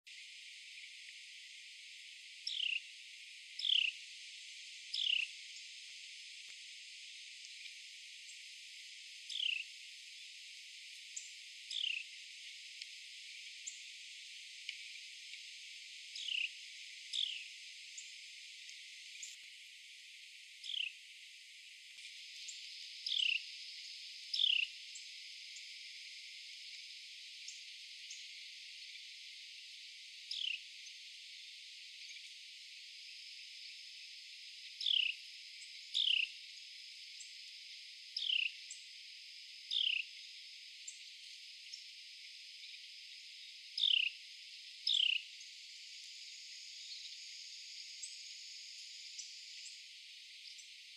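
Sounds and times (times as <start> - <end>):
steady high hiss: 0.1 - 50.9
wren call notes: 2.4 - 2.9, 3.6 - 4.0, 4.9 - 5.3, 9.3 - 9.6, 11.7 - 12.1, 16.2 - 17.5, 20.6 - 21.0, 23.0 - 23.4, 24.3 - 24.7, 30.3 - 30.6, 34.8 - 35.2, 36.0 - 36.3, 38.2 - 38.6, 39.7 - 40.1, 43.8 - 44.2, 44.8 - 45.3.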